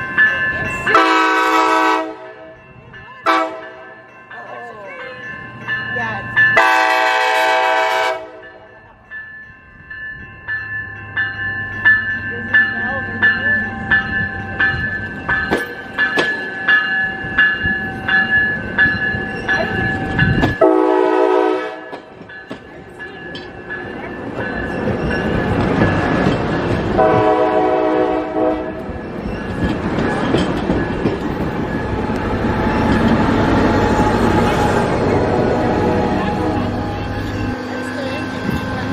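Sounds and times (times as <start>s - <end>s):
grade crossing bells dinging: 0.0s - 38.9s
train rumble: 0.0s - 38.9s
train horn blasts: 0.9s - 2.6s, 3.2s - 4.0s, 6.6s - 8.6s, 20.6s - 22.0s, 27.0s - 28.9s.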